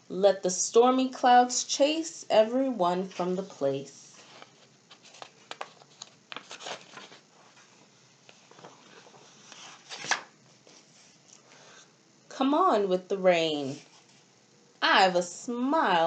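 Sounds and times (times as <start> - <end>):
paper pages rustling: 4.1 - 11.4
soft clicks of pages: 4.4 - 7.1.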